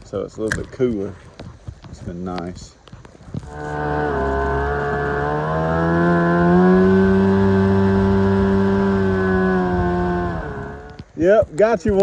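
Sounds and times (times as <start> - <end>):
boat engine running: 3.4 - 11.0.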